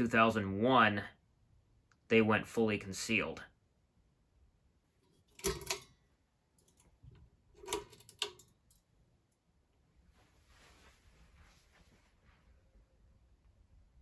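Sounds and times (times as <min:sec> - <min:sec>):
faint rustle: 0:10.0 - 0:12.8.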